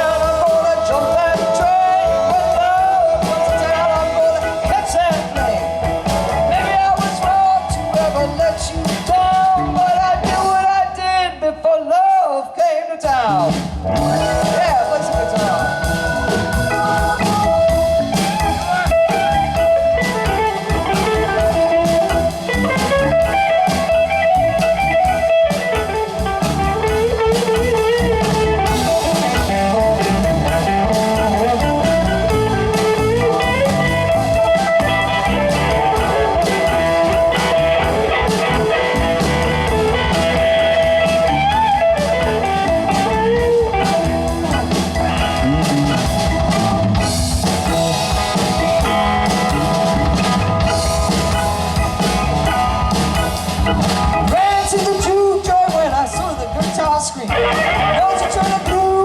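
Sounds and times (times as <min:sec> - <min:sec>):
drum kit: 0:00.0 - 0:11.0, 0:13.0 - 0:59.0
electric guitar solo: 0:13.8 - 0:59.0.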